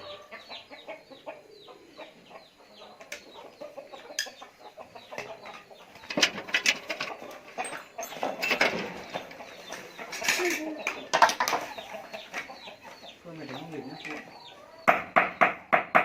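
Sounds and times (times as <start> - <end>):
chickens clucking: 0.0 - 16.0
clatter of sharp knocks: 6.0 - 9.2, 14.9 - 16.0.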